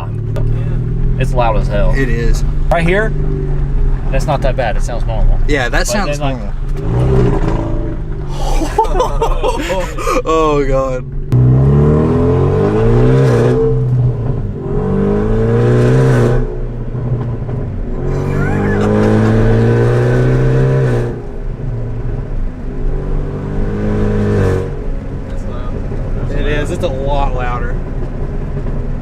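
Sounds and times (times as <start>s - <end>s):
car engine accelerating: 0.0s - 29.0s.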